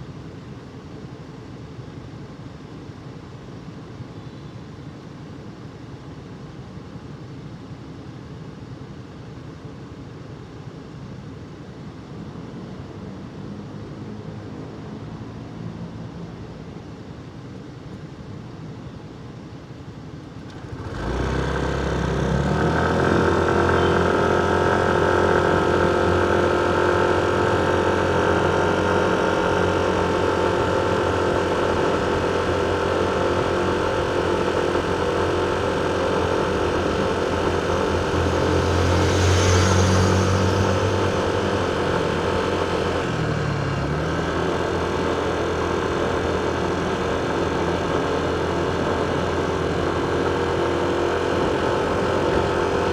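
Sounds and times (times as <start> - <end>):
motorcycle engine running: 20.4 - 52.9.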